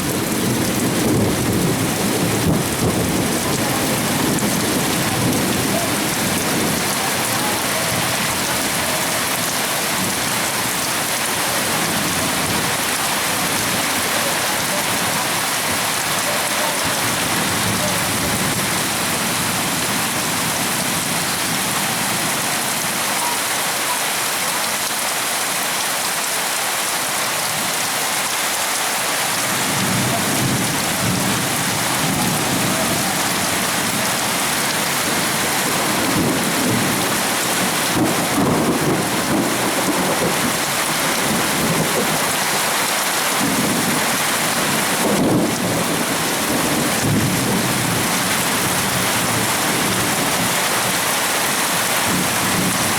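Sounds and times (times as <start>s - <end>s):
thunder rumbling: 0.0s - 22.4s, 29.5s - 42.2s, 43.4s - 50.5s
heavy rain pouring: 0.0s - 52.9s.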